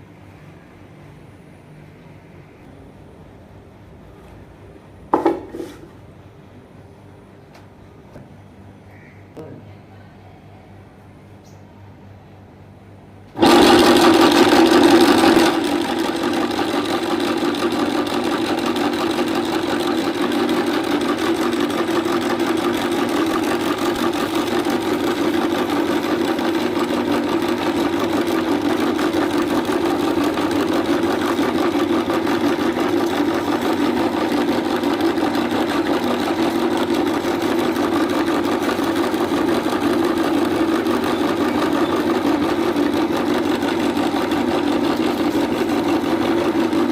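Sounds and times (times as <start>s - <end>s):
electric meat grinder motor: 13.4s - 46.9s.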